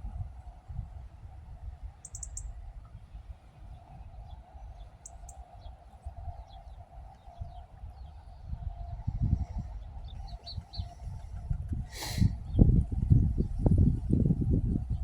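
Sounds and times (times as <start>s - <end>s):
small birds chirping: 2.0s - 8.4s, 9.6s - 12.7s.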